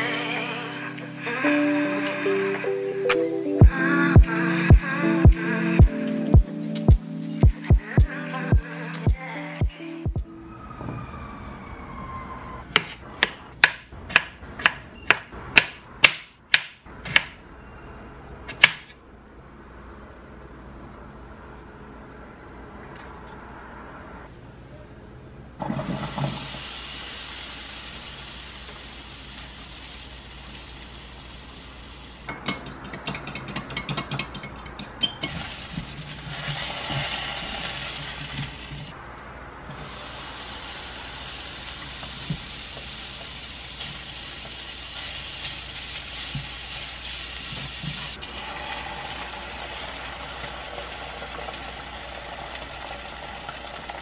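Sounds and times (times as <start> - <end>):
potatoes sizzling in a frying pan: 25.8 - 32.3, 35.3 - 38.9, 39.7 - 54.0.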